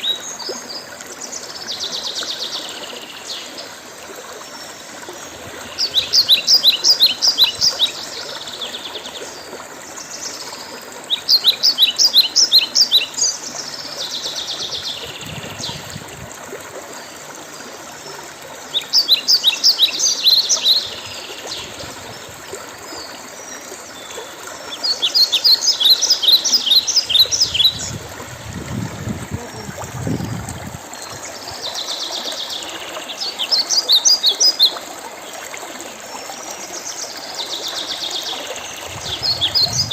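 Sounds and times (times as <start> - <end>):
running water: 0.0 - 39.9
songbird trilling: 24.8 - 28.0, 38.8 - 39.9
low rumble: 38.8 - 39.9.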